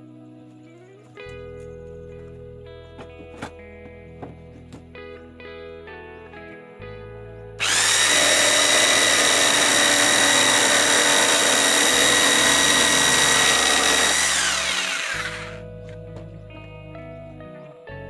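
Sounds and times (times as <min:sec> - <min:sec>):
faint background music: 0:00.0 - 0:18.0
electric jigsaw whining: 0:07.6 - 0:15.6.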